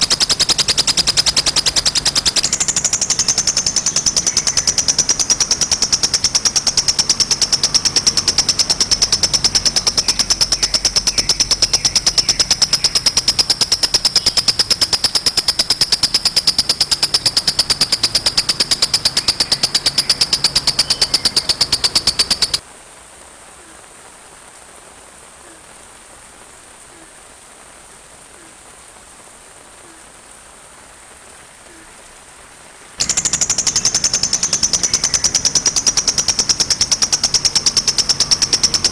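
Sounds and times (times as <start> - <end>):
sunbird trilling song: 0.0 - 22.6, 33.0 - 38.9
soft rain hiss: 0.0 - 38.9.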